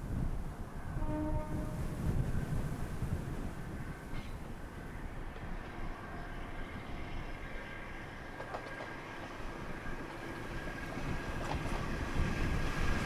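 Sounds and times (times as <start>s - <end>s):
wind buffeting microphone: 0.0s - 8.3s, 9.5s - 13.0s
diesel railcar rumbling: 0.0s - 13.0s.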